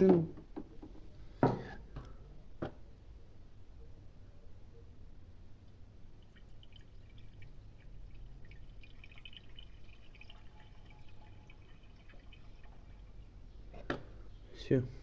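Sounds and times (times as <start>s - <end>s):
liquid trickling and dripping: 5.7s - 13.7s.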